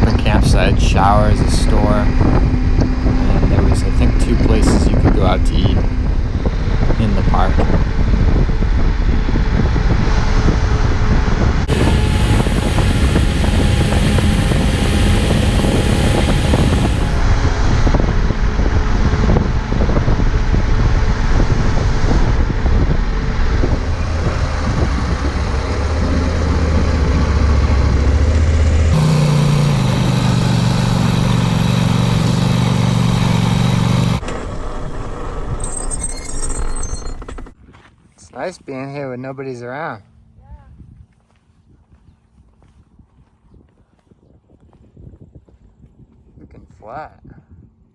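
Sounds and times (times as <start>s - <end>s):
motorcycle engine running: 0.0s - 8.8s, 11.6s - 17.2s, 23.6s - 34.7s
road and wind noise: 0.0s - 38.1s.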